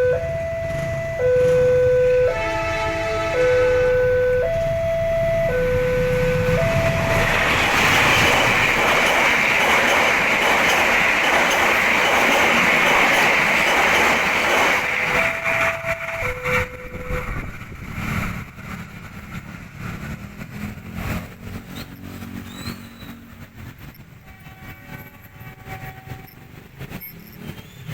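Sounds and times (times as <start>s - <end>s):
two-tone level crossing alarm: 0.0s - 7.5s, 14.4s - 17.5s
train wheels on rails: 3.8s - 27.9s.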